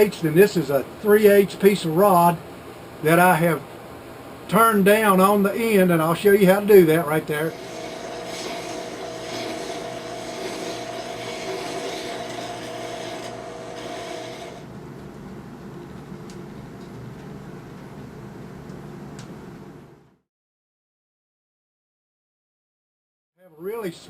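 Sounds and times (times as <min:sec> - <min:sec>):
steady hum: 0:05.6 - 0:20.1
file rasping on metal rod: 0:07.5 - 0:14.6.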